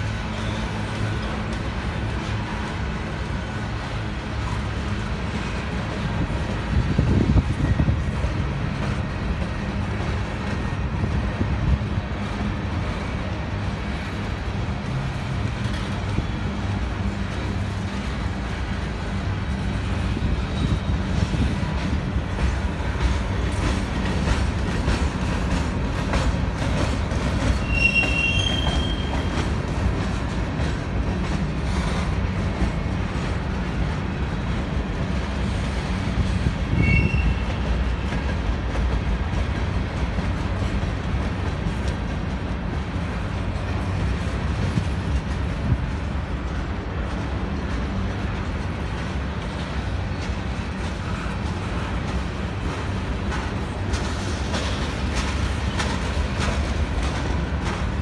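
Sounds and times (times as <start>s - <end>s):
freight train rolling on rails: 0.0s - 58.0s
wheel squeals: 27.5s - 29.4s, 36.7s - 37.6s.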